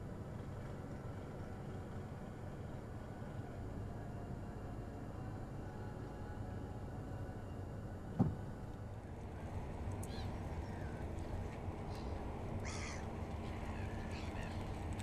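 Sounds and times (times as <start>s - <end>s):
steady low rumble: 0.0s - 15.0s
brief thump: 8.2s - 8.4s
bird calls: 11.8s - 14.9s
harsh caw-like bird call: 12.6s - 14.6s.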